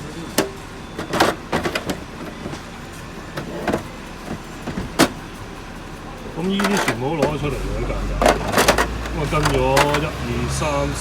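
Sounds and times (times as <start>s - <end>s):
plastic tool case clicks and knocks: 0.4s - 2.6s.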